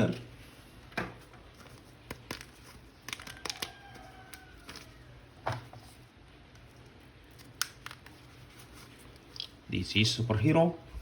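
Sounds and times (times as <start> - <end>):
plastic toy and packaging handled: 0.9 - 9.6.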